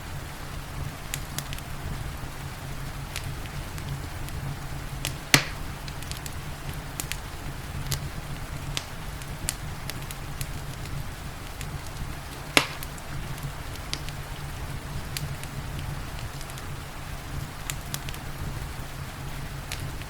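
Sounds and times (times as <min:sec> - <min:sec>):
rain hissing: 0:00.0 - 0:20.0
wood fire crackling: 0:00.0 - 0:20.0
loud sharp fire pops: 0:03.1 - 0:18.6, 0:19.6 - 0:20.0.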